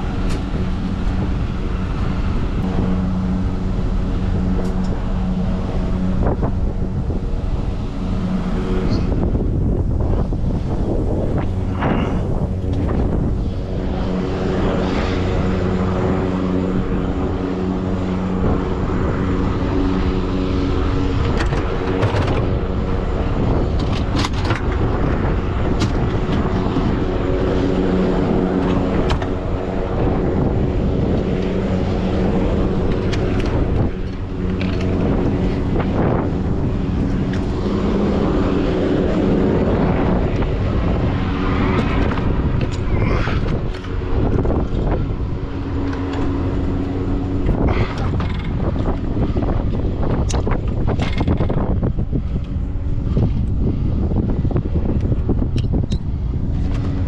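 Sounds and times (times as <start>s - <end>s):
diesel truck engine running: 0.0s - 57.0s
road and wind noise: 0.0s - 57.0s.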